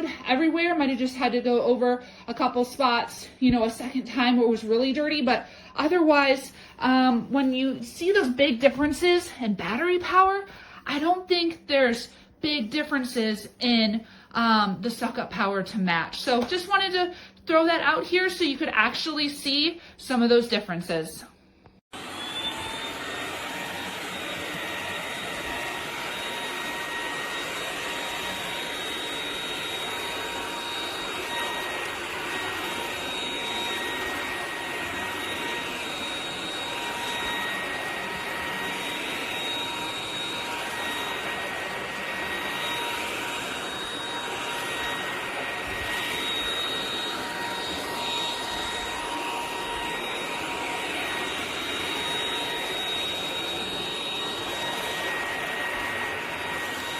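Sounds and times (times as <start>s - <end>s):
stick vacuum motor whine: 21.9s - 56.9s.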